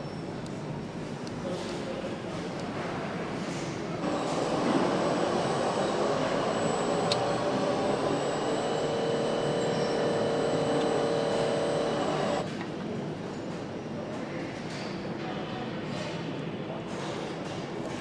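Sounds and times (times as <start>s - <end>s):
mechanical whirring with hum: 3.9s - 12.6s.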